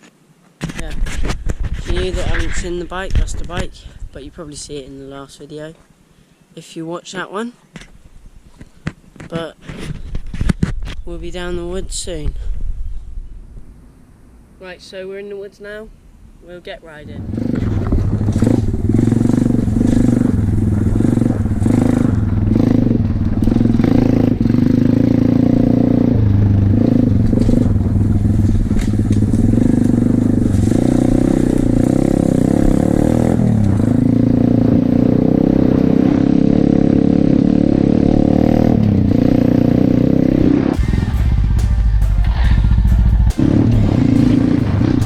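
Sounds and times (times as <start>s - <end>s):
pit bike engine revving: 17.2s - 45.0s.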